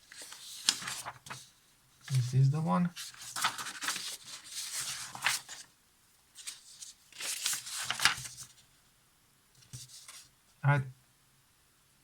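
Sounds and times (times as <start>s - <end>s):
paper pages rustling: 0.0s - 5.7s, 6.4s - 8.7s, 9.6s - 10.3s.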